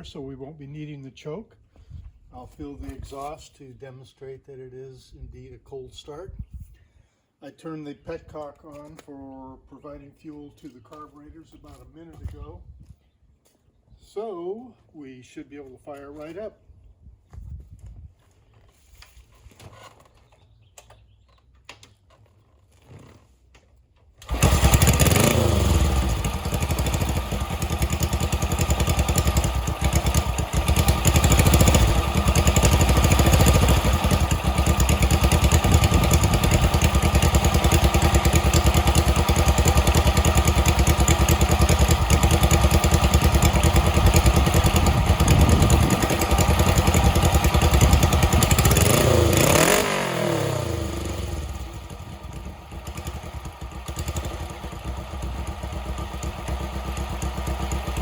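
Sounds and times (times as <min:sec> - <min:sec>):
motorcycle engine starting and running: 0:19.6 - 0:58.0.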